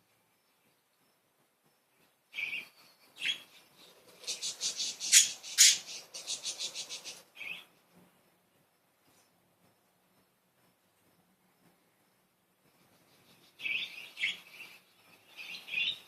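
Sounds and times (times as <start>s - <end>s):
budgerigars chirping and chattering: 3.2s - 7.6s.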